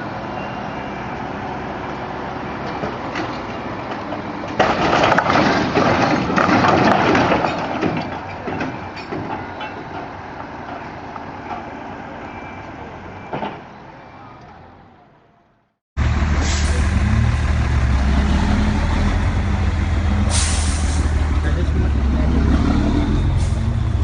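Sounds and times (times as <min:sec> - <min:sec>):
heavy vehicle engine running: 0:16.0 - 0:24.0.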